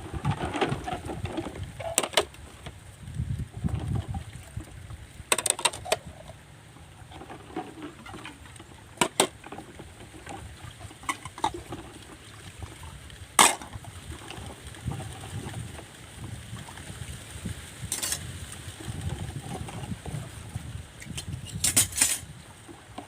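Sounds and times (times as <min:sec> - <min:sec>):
sharp clicks and knocks: 0:00.2 - 0:02.4, 0:05.3 - 0:06.0, 0:09.0 - 0:10.4.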